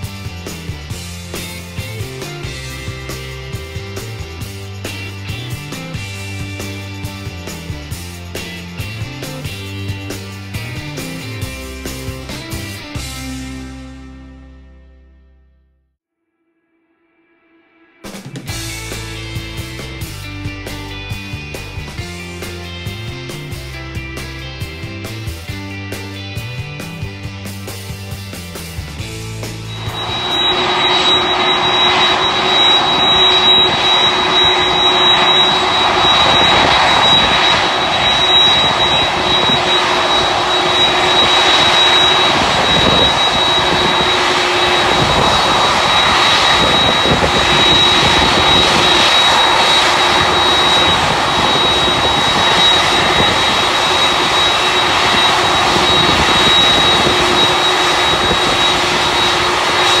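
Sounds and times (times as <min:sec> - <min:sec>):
jet engines roaring: 0:00.0 - 0:13.3, 0:28.4 - 1:00.0
high-pitched engine whine: 0:00.0 - 0:14.1, 0:18.4 - 1:00.0.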